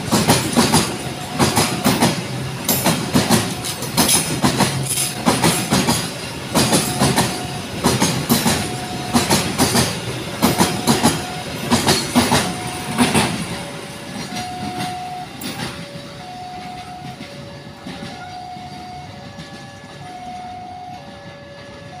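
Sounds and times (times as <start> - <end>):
train wheels clattering: 0.0 - 22.0
two-tone level crossing warning: 6.5 - 22.0.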